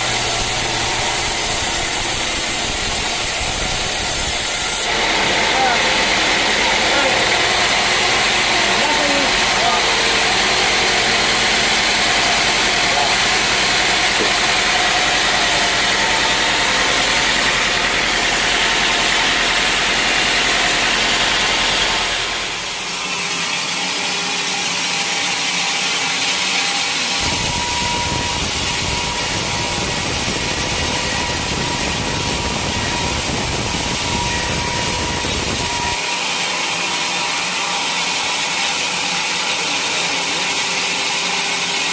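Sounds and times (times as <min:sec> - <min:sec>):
rushing noise with high whine: 0:00.0 - 0:05.6, 0:27.2 - 0:36.0
sawing noise: 0:00.0 - 0:41.9.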